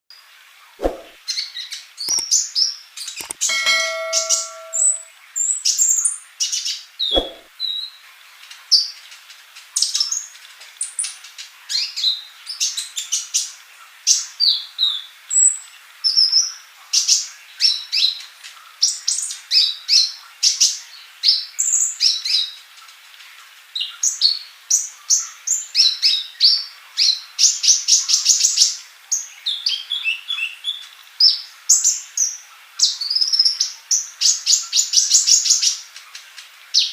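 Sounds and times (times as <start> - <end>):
short pitched tone: 3.5 - 5.1.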